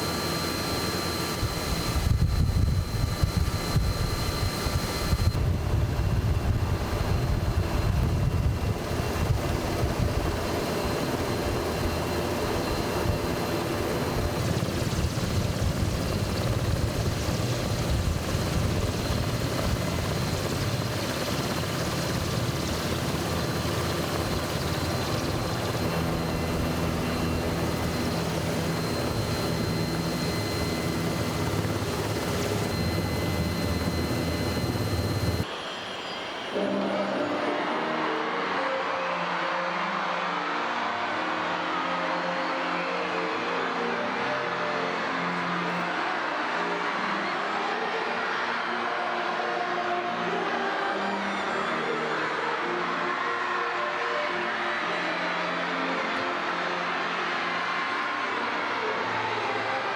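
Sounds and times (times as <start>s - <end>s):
helicopter overhead: 0.0s - 35.5s.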